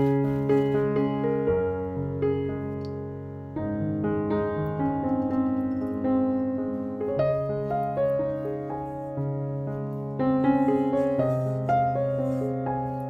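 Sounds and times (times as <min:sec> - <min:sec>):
slow piano music: 0:00.0 - 0:13.0.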